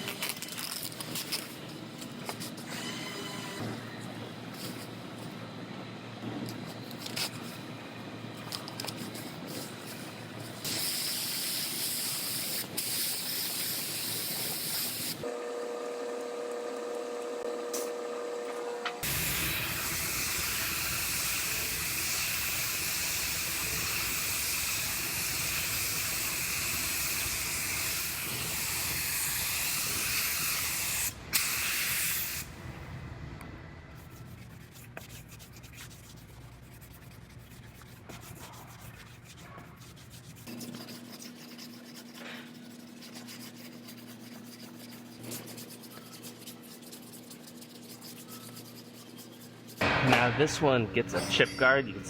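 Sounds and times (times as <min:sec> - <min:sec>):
rubbing and scratching: 0:33.9 - 0:50.8.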